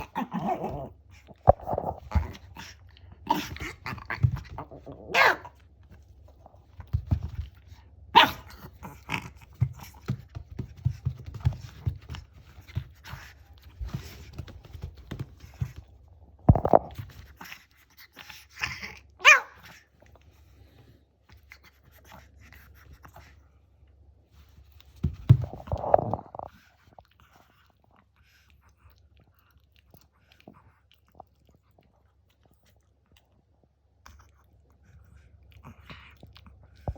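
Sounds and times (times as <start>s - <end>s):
dog breathing and mouth sounds: 0.0s - 5.0s, 19.7s - 36.9s
dog growly play-roar: 0.0s - 5.6s, 8.2s - 10.1s, 16.6s - 19.4s, 25.4s - 26.7s.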